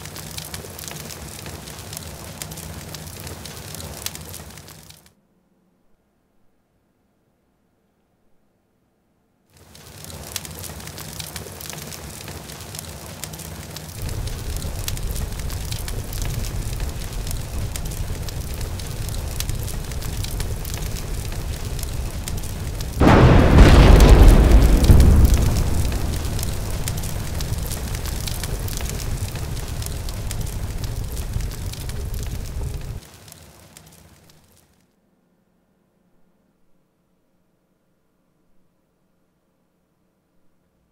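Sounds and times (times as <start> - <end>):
bonfire crackling: 0.0 - 5.1, 9.6 - 34.8
explosion with deep boom: 14.0 - 33.0.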